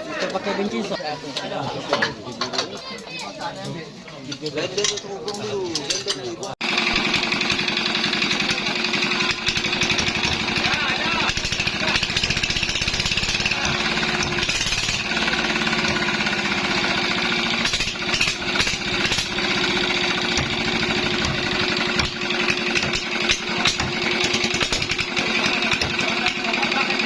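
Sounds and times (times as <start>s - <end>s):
boat engine running: 6.7s - 27.0s.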